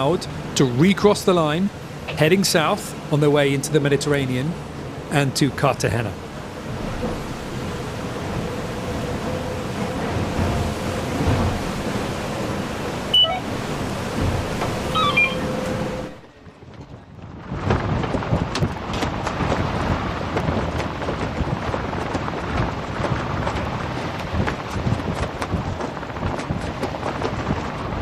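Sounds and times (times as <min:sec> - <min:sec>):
spray and gusts on microphone: 0:00.0 - 0:28.0
wind and water rushing: 0:00.0 - 0:28.0
short high chirps: 0:13.1 - 0:13.6, 0:14.9 - 0:15.6.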